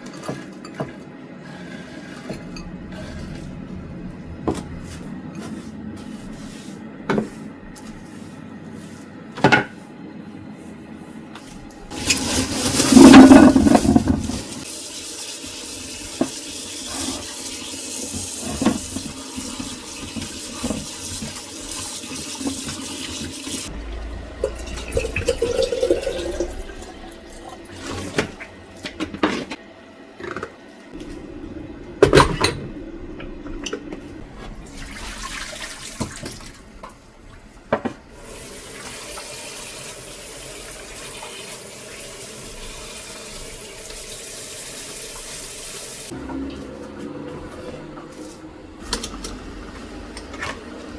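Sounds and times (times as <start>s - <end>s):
water running from a tap: 11.9s - 28.2s, 34.6s - 36.8s, 38.1s - 46.2s.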